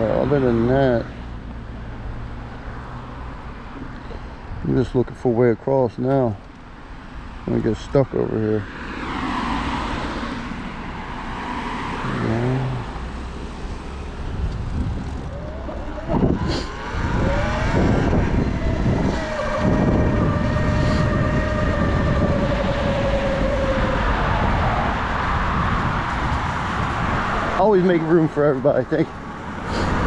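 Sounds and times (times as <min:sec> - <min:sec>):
tyre noise: 0:13.5 - 0:21.5
wind rush on microphone: 0:14.2 - 0:27.7.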